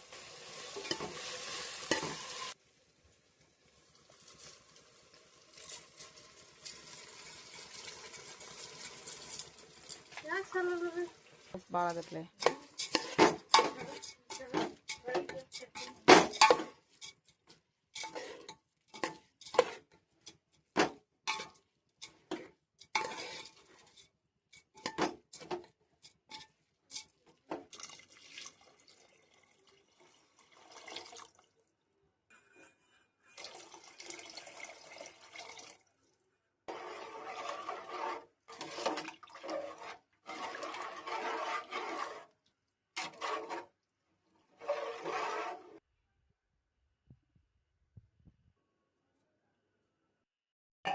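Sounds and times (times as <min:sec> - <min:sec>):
water pouring and splashing: 0:00.0 - 0:02.6, 0:03.5 - 0:17.0, 0:26.9 - 0:31.6, 0:33.3 - 0:36.1, 0:36.7 - 0:42.4
metal utensils clinking on pot: 0:00.8 - 0:01.2, 0:12.0 - 0:27.7.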